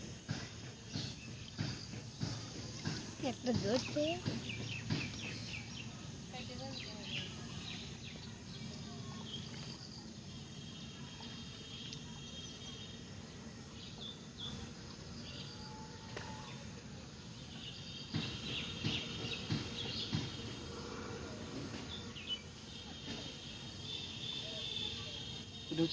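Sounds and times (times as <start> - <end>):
small birds chirping: 0.2 - 10.0, 17.3 - 20.7.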